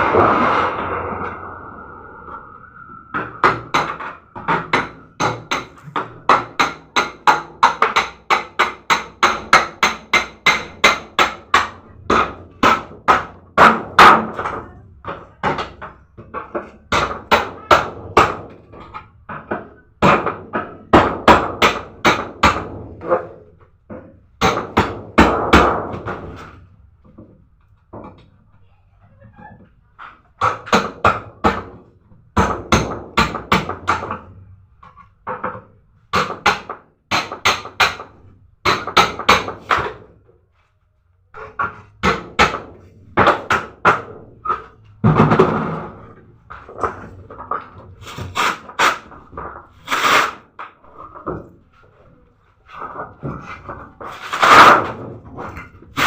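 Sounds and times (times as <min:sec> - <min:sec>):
steady tone: 0:00.0 - 0:06.6.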